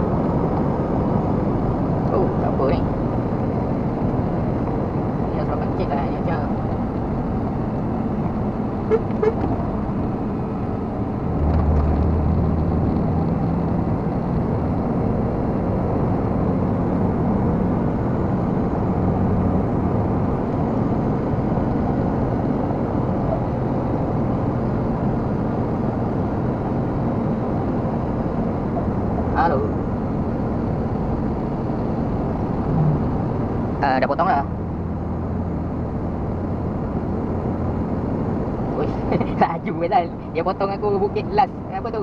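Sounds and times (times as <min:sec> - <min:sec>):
truck diesel engine pulling: 0:00.0 - 0:23.8, 0:28.0 - 0:42.0
tyre and road noise: 0:00.0 - 0:42.0.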